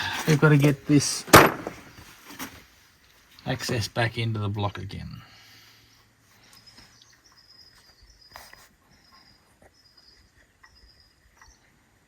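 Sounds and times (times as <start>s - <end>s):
cricket chirping: 5.9s - 12.0s.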